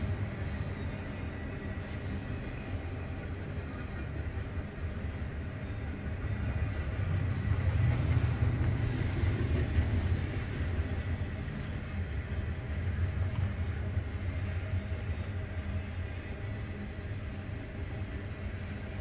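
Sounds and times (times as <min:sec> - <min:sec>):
freight train wheels rumbling on rail: 0:00.0 - 0:19.0.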